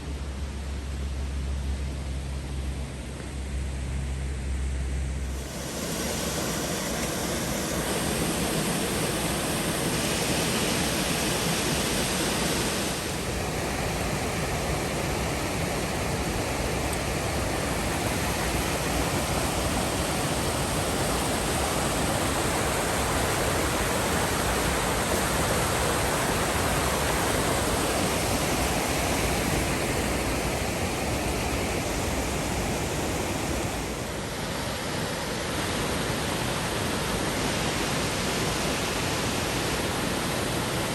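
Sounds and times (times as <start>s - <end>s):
waterfall rushing: 5.3s - 40.9s.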